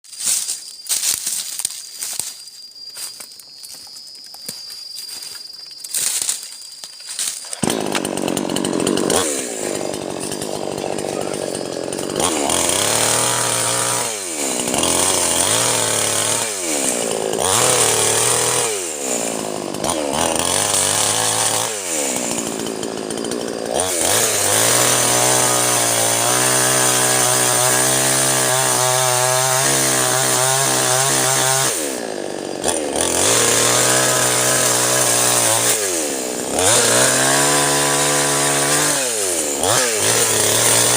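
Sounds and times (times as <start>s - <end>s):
mini chainsaw running: 7.2s - 40.9s.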